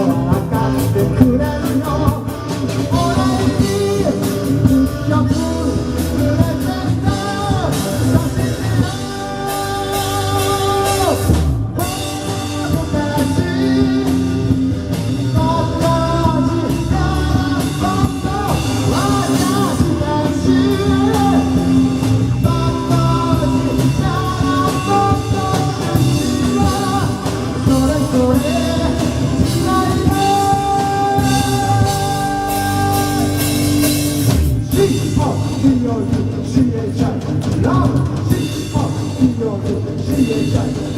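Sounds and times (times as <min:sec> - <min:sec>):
lead vocals singing: 0:00.0 - 0:40.9
live rock band: 0:00.0 - 0:40.9.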